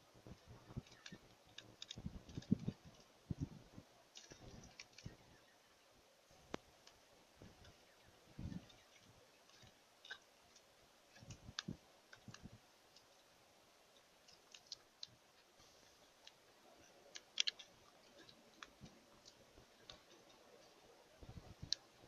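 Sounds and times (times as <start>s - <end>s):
faint sharp clicks and taps: 6.4s - 13.3s, 13.9s - 22.0s.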